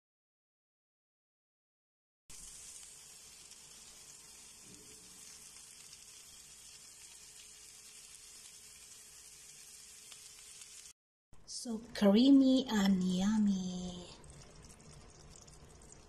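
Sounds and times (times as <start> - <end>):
chicken and onions sizzling: 2.3 - 11.0.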